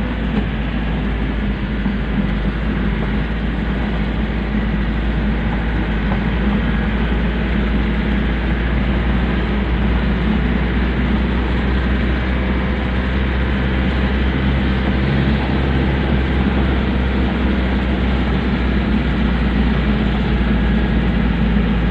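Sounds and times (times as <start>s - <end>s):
road noise: 0.0s - 21.9s
truck engine droning: 0.0s - 21.9s.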